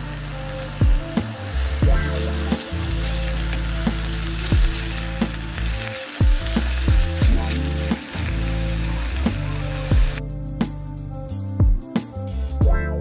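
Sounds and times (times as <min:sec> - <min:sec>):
food sizzling in hot oil: 0:00.0 - 0:10.2.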